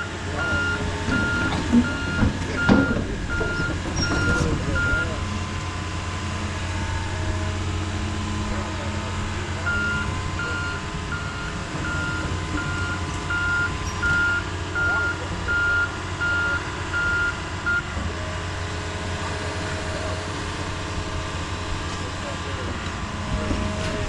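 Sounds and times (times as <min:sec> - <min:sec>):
diesel engine hum: 0:00.0 - 0:24.0
backup alarm beeping: 0:00.4 - 0:05.2, 0:09.7 - 0:17.9.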